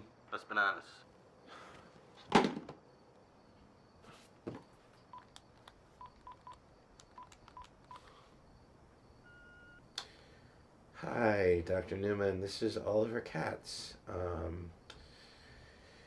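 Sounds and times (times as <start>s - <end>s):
key clicks: 5.2s - 8.0s
telephone keypad beeps: 6.0s - 6.6s, 7.2s - 8.1s, 9.2s - 9.8s
steady telephone tone: 9.2s - 9.8s.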